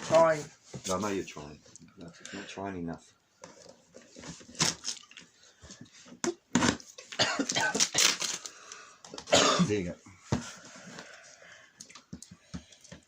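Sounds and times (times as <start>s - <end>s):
cardboard ripping and crackling: 4.4s - 5.0s, 7.8s - 8.5s.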